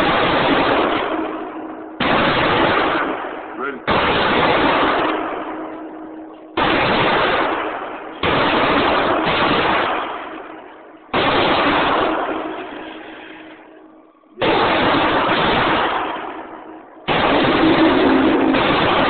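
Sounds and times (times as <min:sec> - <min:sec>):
rifle shots: 0:00.0 - 0:19.0.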